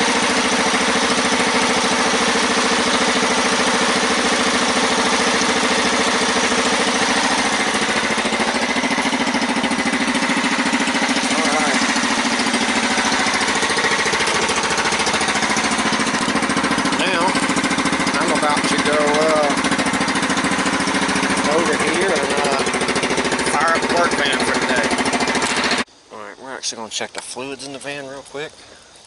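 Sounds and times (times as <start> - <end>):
dragster engine running: 0.0 - 25.9.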